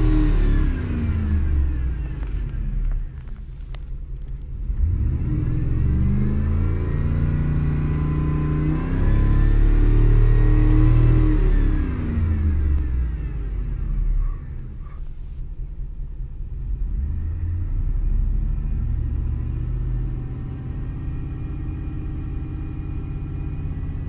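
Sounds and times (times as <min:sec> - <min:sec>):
pickup engine revving: 0:04.2 - 0:15.1, 0:16.7 - 0:24.0.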